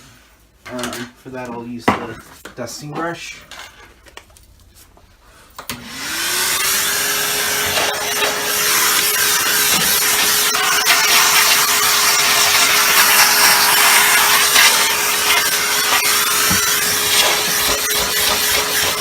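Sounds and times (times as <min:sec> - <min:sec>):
vacuum cleaner running: 0:05.7 - 0:19.0.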